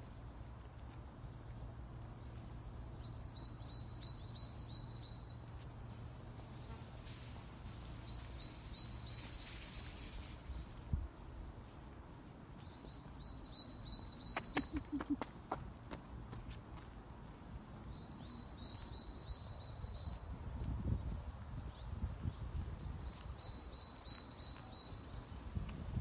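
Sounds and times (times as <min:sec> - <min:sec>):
footsteps on pavement: 0:00.1 - 0:02.7, 0:04.9 - 0:08.1, 0:14.2 - 0:17.8, 0:23.0 - 0:26.0.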